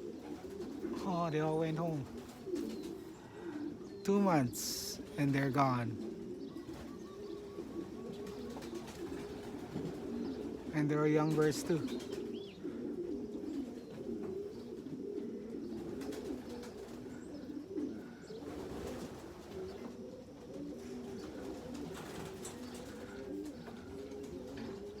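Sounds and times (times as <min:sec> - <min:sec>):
pigeons cooing: 0:00.0 - 0:25.0.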